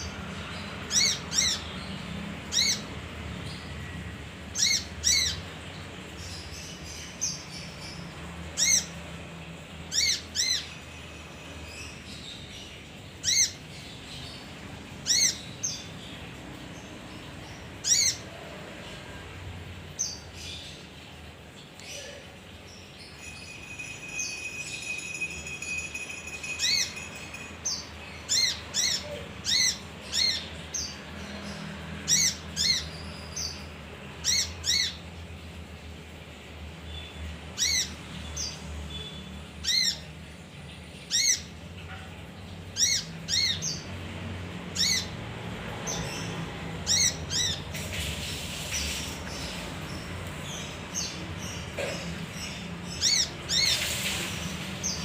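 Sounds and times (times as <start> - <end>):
burst of hiss: 53.6 - 54.7.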